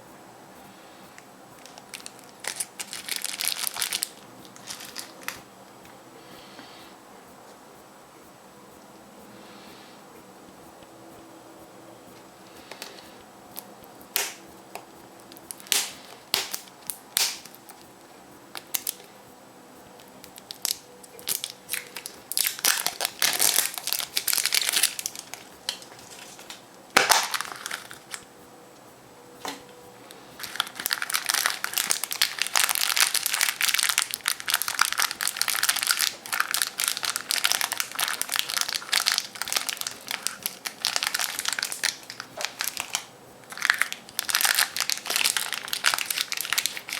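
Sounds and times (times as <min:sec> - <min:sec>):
foil wrapper crinkling: 0:01.6 - 0:05.4, 0:15.2 - 0:17.8, 0:18.5 - 0:19.1, 0:20.0 - 0:28.3, 0:30.4 - 0:46.9
loud sharp foil crack: 0:15.4 - 0:17.8, 0:20.3 - 0:28.2, 0:30.4 - 0:46.9.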